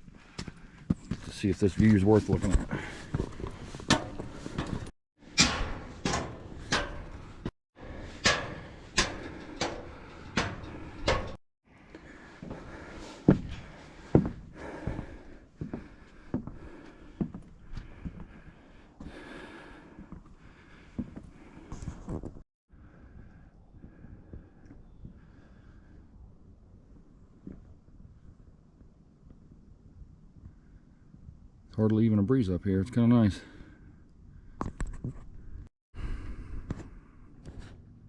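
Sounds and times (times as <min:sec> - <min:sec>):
footsteps climbing stairs: 0:00.3 - 0:11.4, 0:12.2 - 0:18.4.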